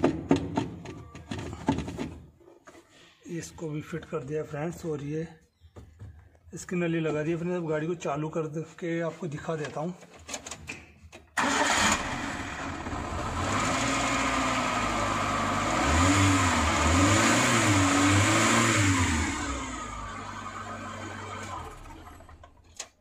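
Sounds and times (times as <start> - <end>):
car engine starting and revving: 11.4 - 22.5.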